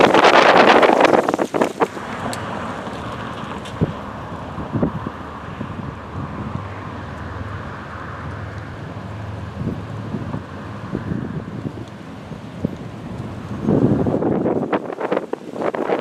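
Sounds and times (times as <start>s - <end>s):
loud rushing noise: 0.0s - 8.2s
freight train cars rumbling: 0.0s - 16.0s
wind on microphone: 0.0s - 16.0s.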